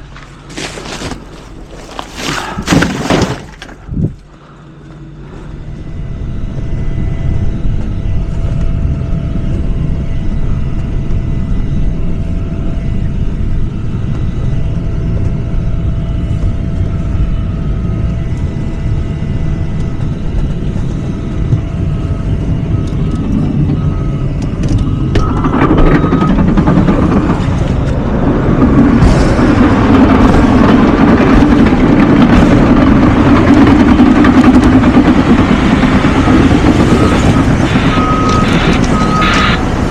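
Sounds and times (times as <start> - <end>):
garbage truck diesel engine: 12.7 - 39.9.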